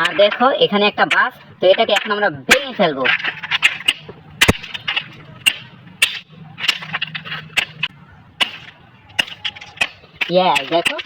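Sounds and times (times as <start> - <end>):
crunching: 0.0 - 11.0
hammer blows cracking bus: 1.8 - 11.0.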